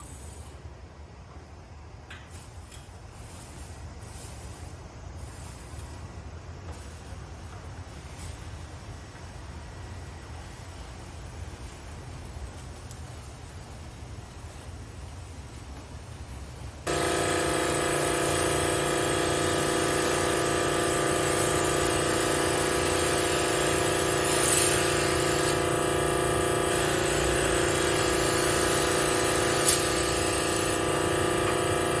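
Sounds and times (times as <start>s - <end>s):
electric motor buzzing: 16.9s - 32.0s.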